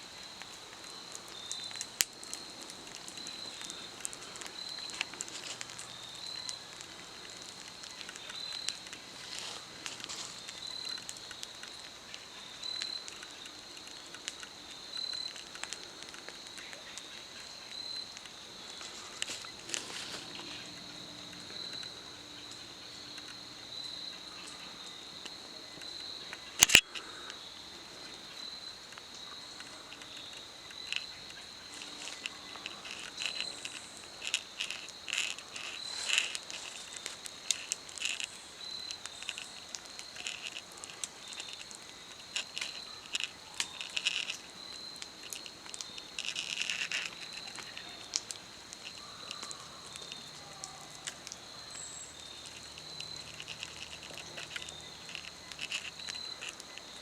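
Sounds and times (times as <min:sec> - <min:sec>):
insects droning: 0:00.0 - 0:57.0
short insect chirps: 0:00.1 - 0:57.0.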